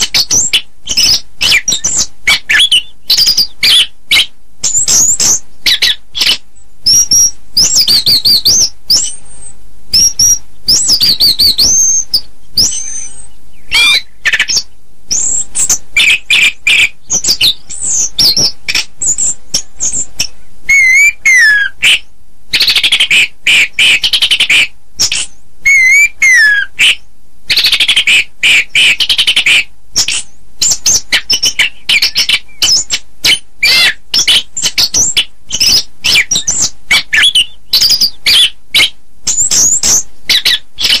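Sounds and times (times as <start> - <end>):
thrush singing whistled trills: 0.0 - 41.0.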